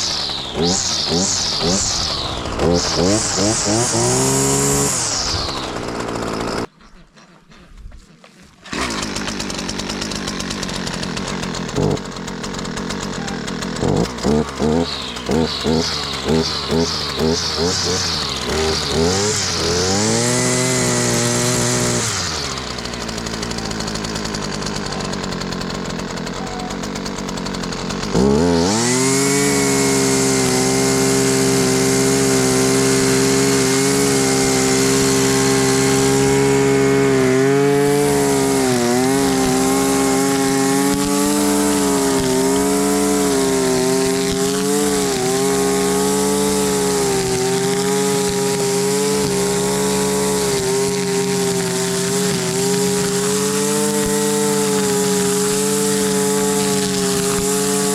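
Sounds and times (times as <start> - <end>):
string trimmer engine revving: 0.0 - 7.3, 8.1 - 57.9.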